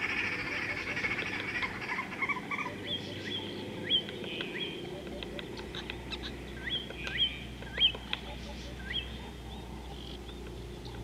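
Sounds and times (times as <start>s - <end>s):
bird chirps: 0.0s - 11.0s
birds whistling upward notes: 0.0s - 11.0s
faint outdoor background: 0.0s - 11.0s.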